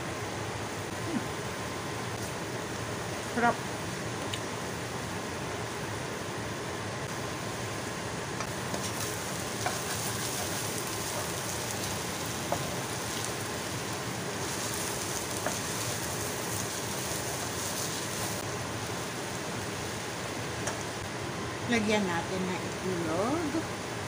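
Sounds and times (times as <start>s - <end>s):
vegetables sizzling in frying pan: 1.0s - 24.0s
spatula knocking pan: 9.6s - 10.6s, 15.4s - 15.8s.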